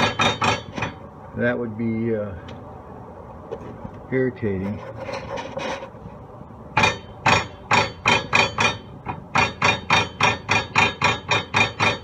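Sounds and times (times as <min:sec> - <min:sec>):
sharp metallic knocks: 0:00.0 - 0:01.0, 0:06.8 - 0:12.0.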